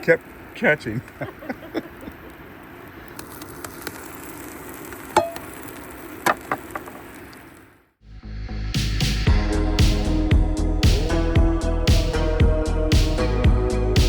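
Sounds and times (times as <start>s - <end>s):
hissing gas flame: 0.0s - 7.8s
music: 8.0s - 14.0s.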